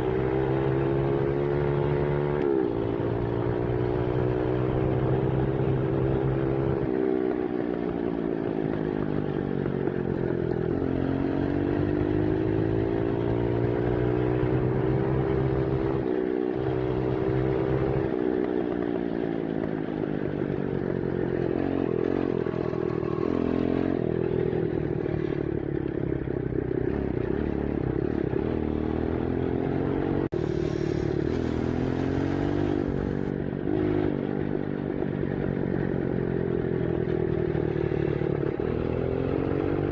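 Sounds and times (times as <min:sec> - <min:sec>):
dirt bike engine revving: 0:28.4 - 0:34.2.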